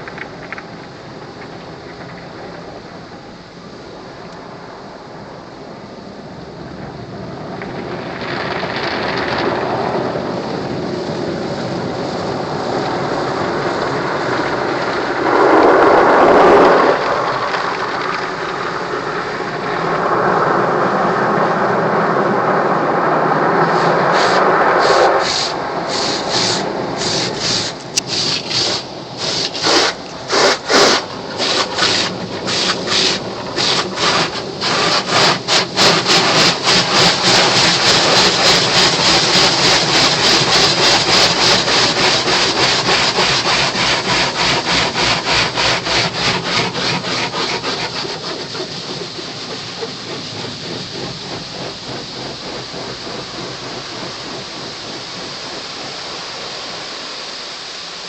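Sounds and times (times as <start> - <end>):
car wash brushes swishing: 22.9 - 56.8.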